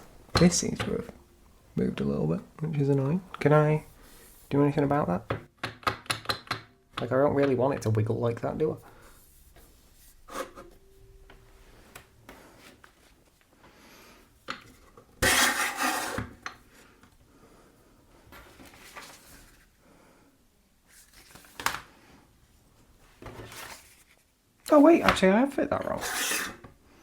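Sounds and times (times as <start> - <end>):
metal scraping rub: 15.2 - 16.4, 25.9 - 26.6.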